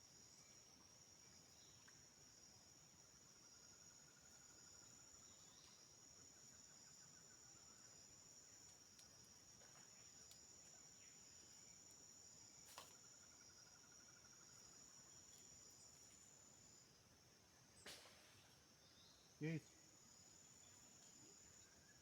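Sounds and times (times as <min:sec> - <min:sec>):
lower pulsing insect trill: 0:00.0 - 0:22.0.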